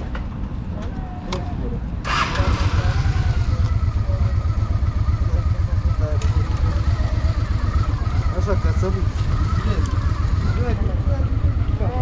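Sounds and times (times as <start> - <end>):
motorcycle engine running: 2.1 - 12.0.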